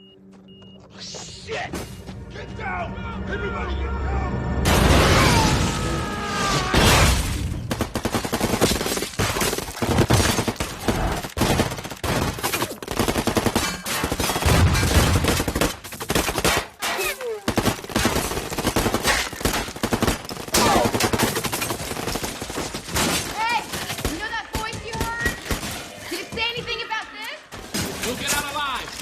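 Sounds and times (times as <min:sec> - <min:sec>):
booming impacts: 0:04.4 - 0:07.9
automatic gunfire: 0:07.7 - 0:16.8, 0:17.5 - 0:22.5.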